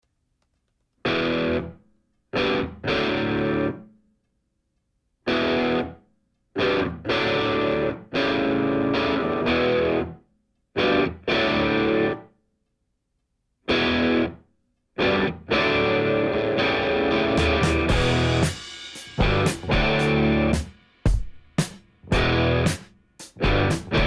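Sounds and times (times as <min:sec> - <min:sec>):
distorted electric guitar chords: 0:01.1 - 0:01.7, 0:02.4 - 0:03.8, 0:05.3 - 0:06.0, 0:06.6 - 0:10.2, 0:10.8 - 0:12.2, 0:13.7 - 0:14.4, 0:15.0 - 0:20.7, 0:22.1 - 0:22.8, 0:23.4 - 0:24.0.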